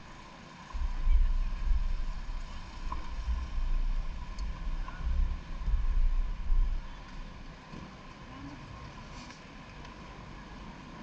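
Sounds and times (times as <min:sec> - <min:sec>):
wind buffeting microphone: 0:00.7 - 0:07.8.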